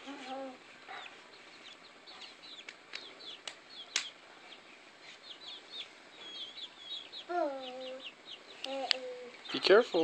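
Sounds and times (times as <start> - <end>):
chickens chirping: 0.0 - 10.0
sharp clicks: 2.6 - 4.1.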